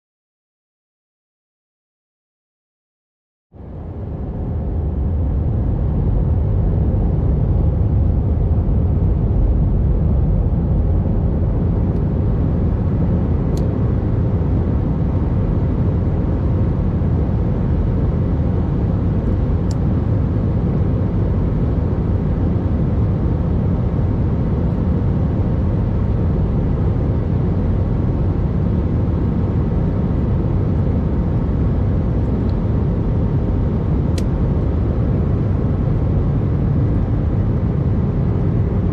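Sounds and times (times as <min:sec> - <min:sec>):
jet engines rumbling: 0:03.6 - 0:38.9.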